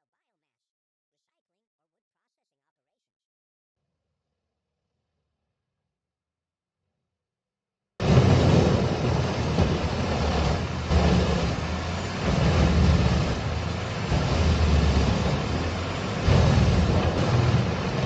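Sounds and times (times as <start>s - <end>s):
heavy machine engine droning: 8.0s - 18.0s.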